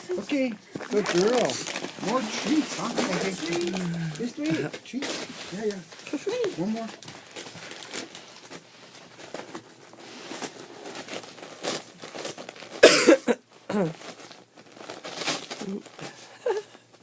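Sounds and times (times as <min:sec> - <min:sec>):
paper crinkles and clicks: 0:00.2 - 0:09.7, 0:14.0 - 0:17.0
dog tearing wrapping paper: 0:00.2 - 0:12.9, 0:13.8 - 0:16.6
cough-like voice burst: 0:12.8 - 0:13.9.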